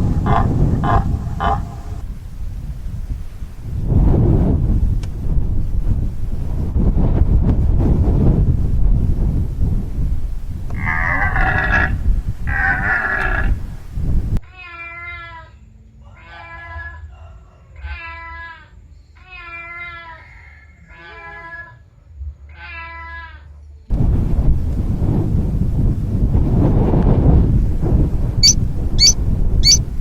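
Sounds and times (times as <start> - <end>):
cat meowing: 28.4 - 29.8.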